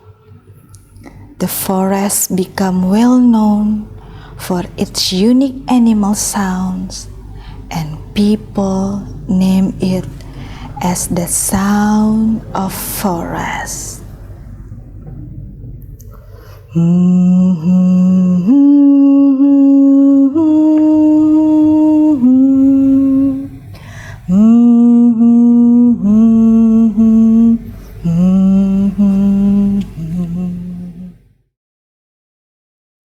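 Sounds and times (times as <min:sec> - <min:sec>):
person humming a slow tune: 0:16.6 - 0:31.3.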